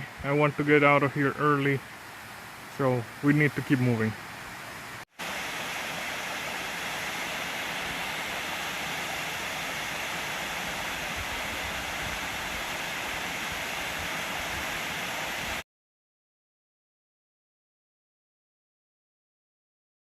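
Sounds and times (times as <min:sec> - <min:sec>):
waterfall rushing: 0:00.0 - 0:15.6.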